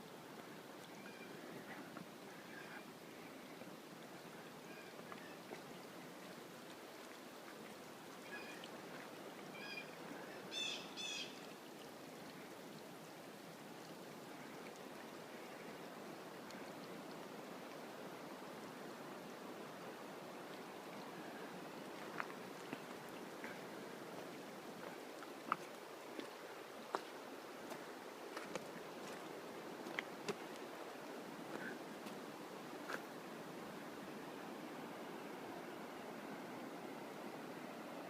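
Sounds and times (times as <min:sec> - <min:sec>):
mountain brook flowing: 0:00.0 - 0:38.0
bird calling: 0:09.5 - 0:11.5.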